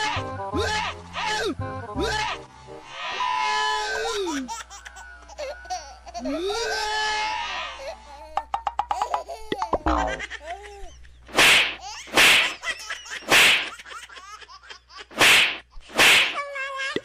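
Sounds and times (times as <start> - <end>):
giggly warbling laughter: 3.6 - 8.1, 9.7 - 11.2.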